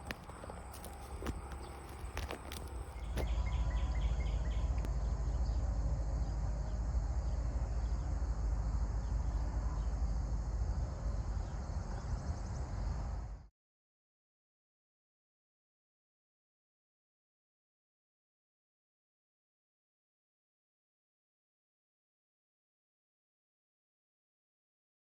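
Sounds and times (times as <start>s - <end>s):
insects chirping faintly: 0.0s - 3.3s
engine running with low rumble: 0.0s - 13.5s.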